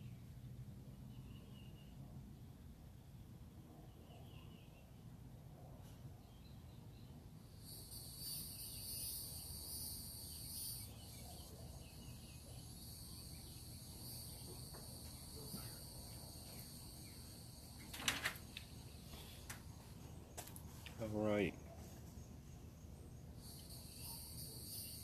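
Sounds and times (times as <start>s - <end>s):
cicadas buzzing: 7.3s - 25.0s.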